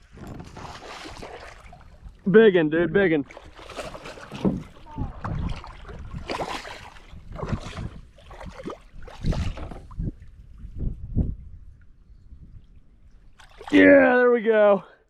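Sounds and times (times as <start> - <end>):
water splashing around kayak: 0.0 - 10.8, 12.6 - 14.2
knocks on kayak: 3.9 - 5.4.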